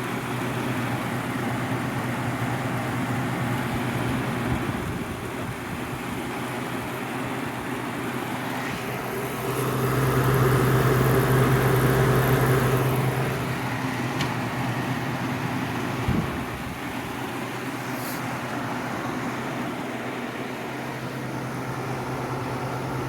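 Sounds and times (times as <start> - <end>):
compressor humming: 0.0 - 7.0, 8.1 - 23.0
fan rushing: 8.1 - 23.0.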